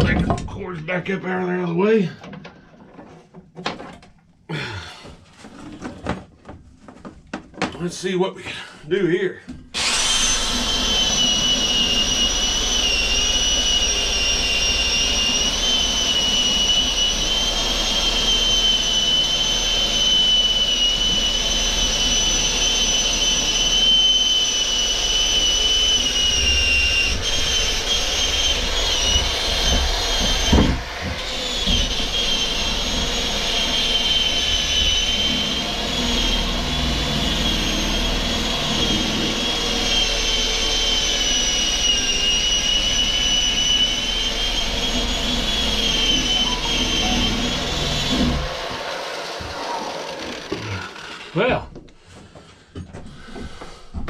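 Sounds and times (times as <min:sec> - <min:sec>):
drill sanding steel whine: 0:09.8 - 0:51.6.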